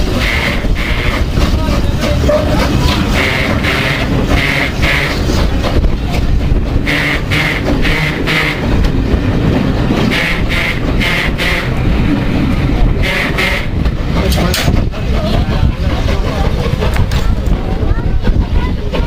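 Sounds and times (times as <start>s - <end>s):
steam locomotive hissing bursts: 0.0s - 5.6s, 6.8s - 8.8s, 13.0s - 13.8s
low rumble: 0.0s - 19.0s.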